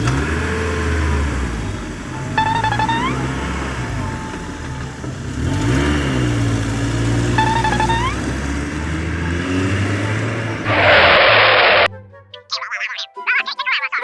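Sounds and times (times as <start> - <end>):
truck engine revving: 0.0 - 12.0
short rising high tone: 2.4 - 4.0, 7.3 - 8.5, 10.5 - 11.9.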